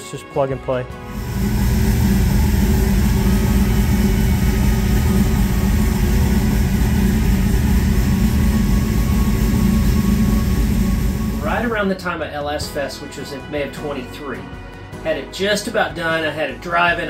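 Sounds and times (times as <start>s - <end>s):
car engine idling: 1.0s - 11.8s.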